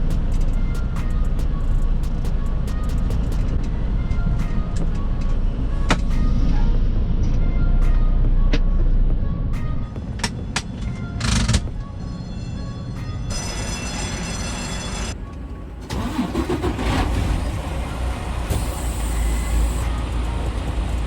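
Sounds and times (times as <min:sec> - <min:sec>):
road noise: 0:09.8 - 0:21.0
truck diesel engine running: 0:14.9 - 0:21.0.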